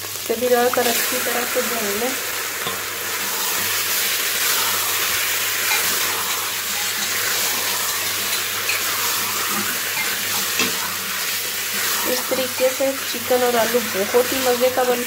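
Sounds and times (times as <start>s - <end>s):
food sizzling in hot oil: 0.0s - 15.0s
spatula scraping a pot: 2.6s - 14.6s.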